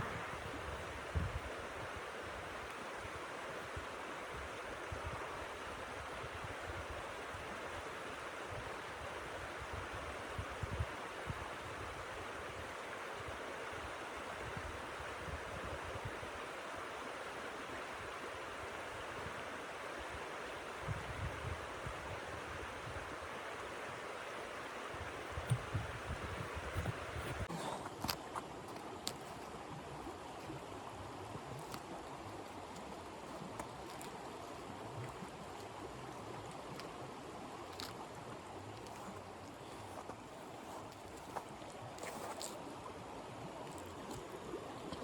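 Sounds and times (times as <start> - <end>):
wind gusts buffeting microphone: 25.2 - 27.5.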